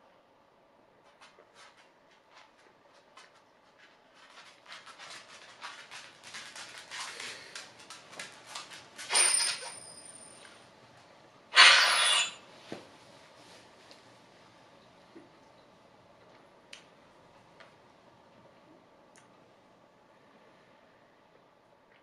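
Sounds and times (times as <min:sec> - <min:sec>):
metal spoon scraping a bowl: 0:11.6 - 0:12.4.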